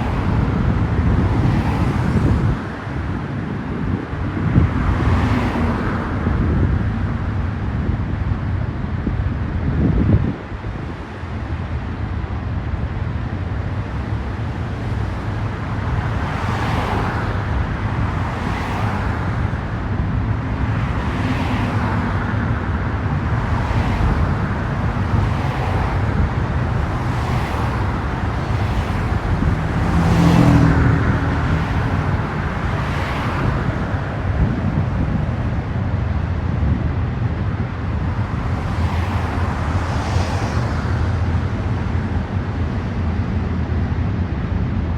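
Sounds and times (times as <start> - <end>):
freight train rumbling past: 16.1 - 36.4.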